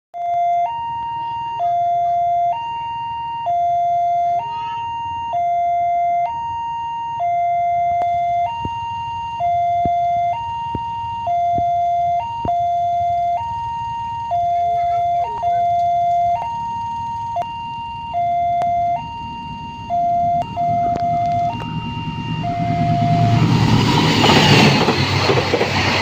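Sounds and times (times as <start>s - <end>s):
two-tone electronic siren: 0.2s - 26.0s
low rumble: 18.1s - 26.0s.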